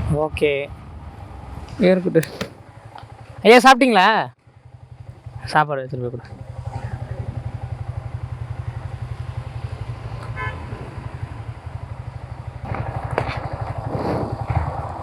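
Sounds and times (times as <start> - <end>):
traffic noise: 0.0 - 15.0
motorcycle engine running: 0.4 - 15.0
vehicle horn toot: 10.3 - 10.8.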